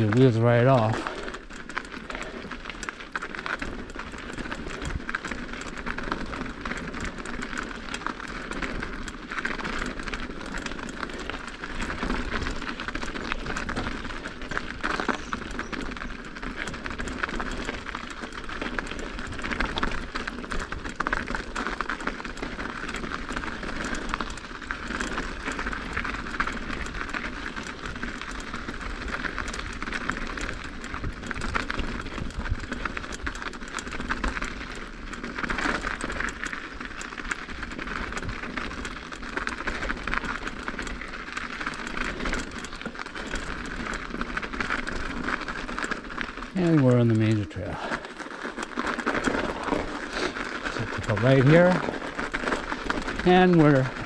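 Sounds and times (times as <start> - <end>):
bike rattles and clicks: 0.0 - 54.0
tyre noise on ice and snow: 44.3 - 54.0.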